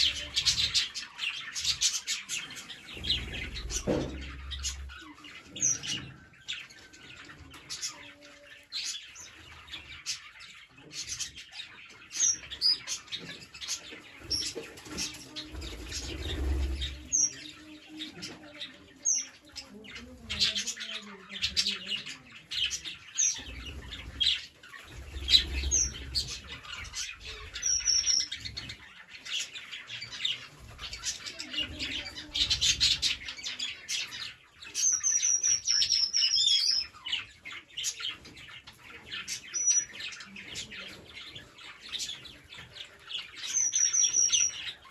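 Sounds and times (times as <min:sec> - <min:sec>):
parrots chattering: 0:11.0 - 0:29.5, 0:43.1 - 0:44.9.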